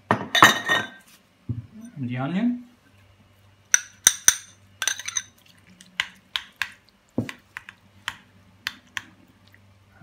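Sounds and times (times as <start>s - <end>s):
utensil clinking against bowl: 3.7s - 5.4s.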